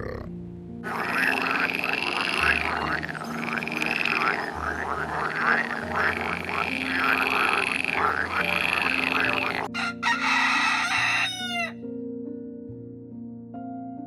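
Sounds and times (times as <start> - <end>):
frogs croaking: 0.0 - 11.7.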